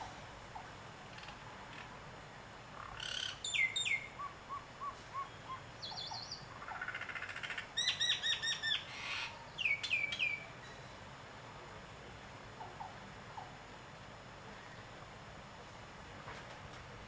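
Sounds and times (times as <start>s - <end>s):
birds calling: 0.0s - 10.9s
bird trill: 2.8s - 11.0s.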